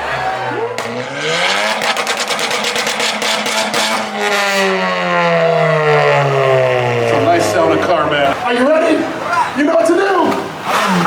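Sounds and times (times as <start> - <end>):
engine revving: 0.0 - 9.2
exhaust pops: 0.7 - 9.2.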